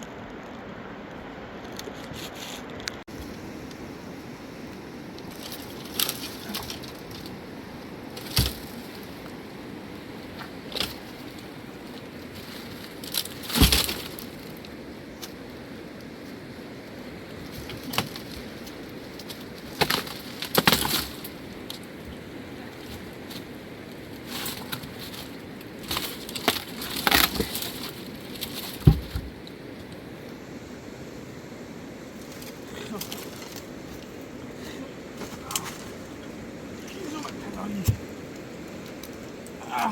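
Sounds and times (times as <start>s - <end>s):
background hiss: 1.6s - 39.9s
dry twigs cracking: 4.7s - 9.6s, 10.2s - 15.5s, 17.4s - 22.0s, 22.8s - 30.1s, 32.2s - 39.9s
sharp cracks and heavy knocks: 13.1s - 14.2s
heavy thud: 28.8s - 29.4s.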